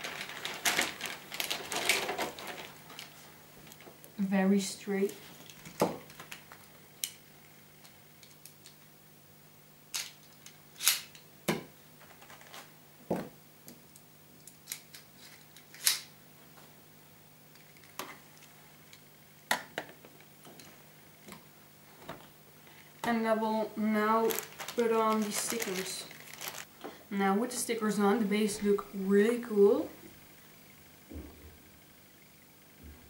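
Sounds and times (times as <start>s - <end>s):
packaging rustling: 0.0s - 3.9s, 5.3s - 6.7s, 12.0s - 12.7s, 23.8s - 26.7s.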